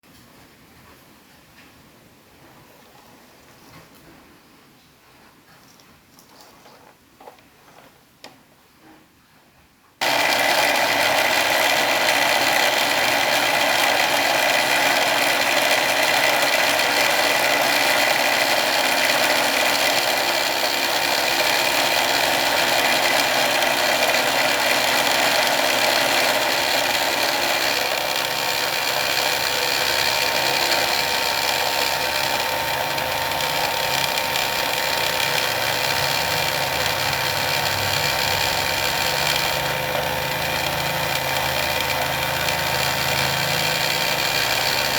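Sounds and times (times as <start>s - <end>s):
electric motor whine: 10.0s - 44.9s
rough mechanical rattle: 10.0s - 44.9s.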